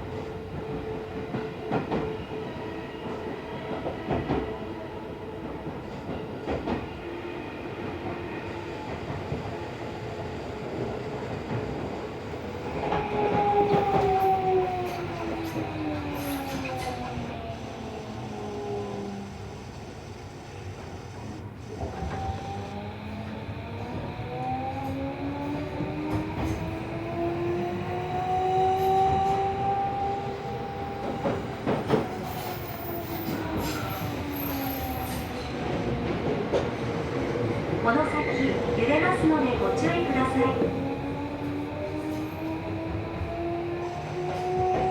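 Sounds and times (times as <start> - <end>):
subway car rolling noise: 0.0 - 44.9
wheels rumbling on rail: 11.4 - 44.9.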